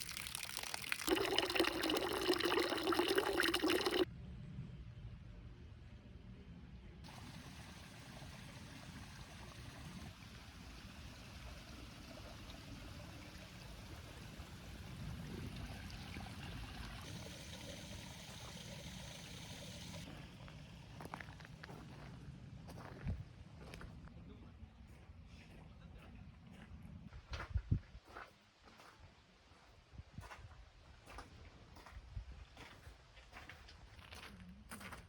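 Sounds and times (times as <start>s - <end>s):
trickling stream: 0.0s - 4.1s, 7.1s - 22.0s.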